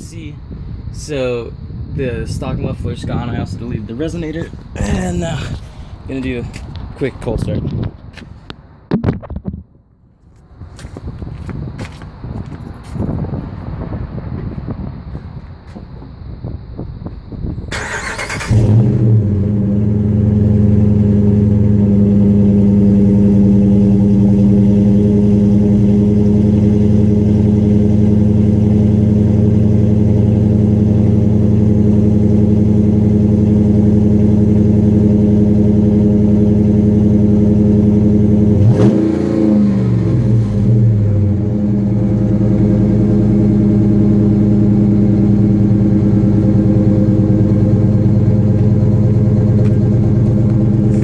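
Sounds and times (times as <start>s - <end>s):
truck engine idling loudly: 40.9s - 51.0s.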